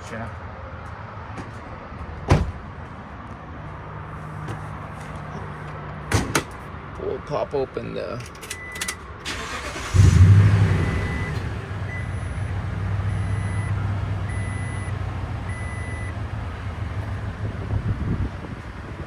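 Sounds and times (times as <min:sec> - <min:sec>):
truck engine starting and idling: 0:08.6 - 0:19.0
electronic warning chime beeping: 0:13.1 - 0:14.9.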